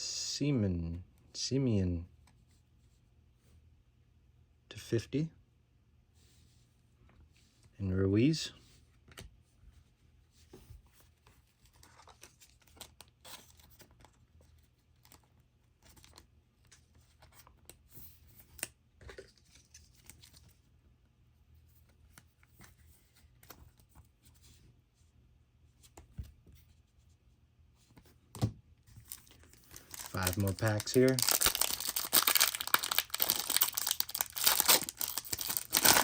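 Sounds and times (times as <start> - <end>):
rustling of cards and wrappers: 10.5 - 20.7, 28.9 - 36.0.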